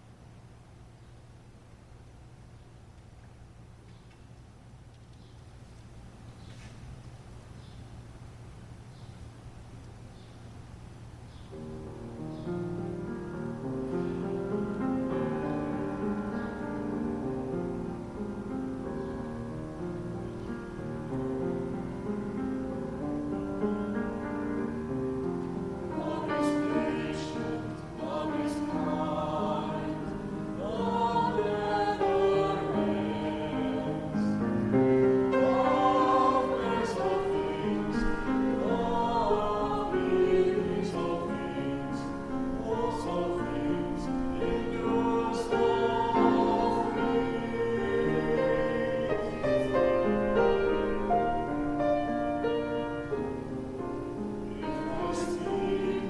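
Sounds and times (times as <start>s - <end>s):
church choir singing: 11.5s - 56.0s
piano accompaniment: 11.5s - 56.0s.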